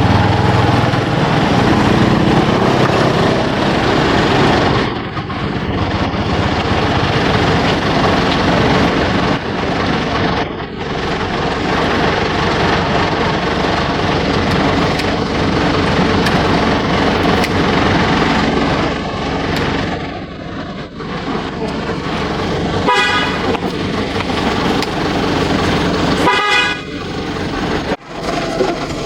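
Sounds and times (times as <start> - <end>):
motor vehicle engine rumble: 0.0 - 29.0
short horn toots: 22.2 - 24.9, 26.1 - 27.0.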